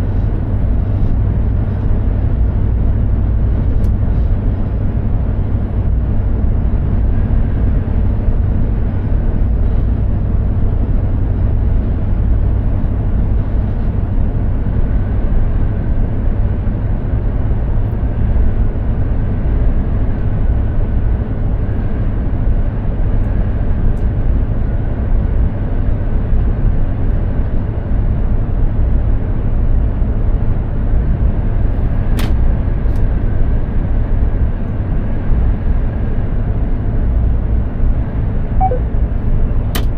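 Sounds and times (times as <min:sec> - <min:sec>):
truck engine and tyre drone: 0:00.0 - 0:39.9
faint high whine: 0:38.6 - 0:38.9.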